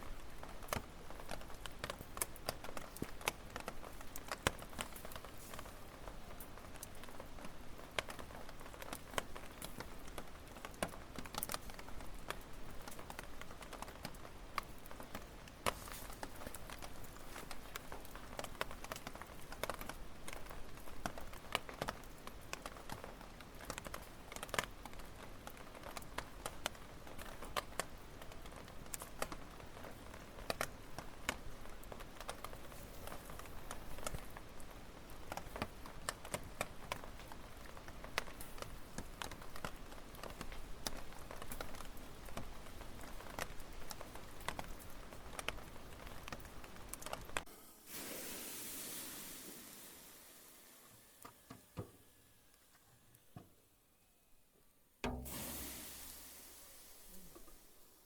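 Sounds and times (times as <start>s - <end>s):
firewood crackling: 0.0s - 53.4s, 55.0s - 58.0s
fire hiss: 15.6s - 18.2s, 47.4s - 52.6s, 55.1s - 58.0s.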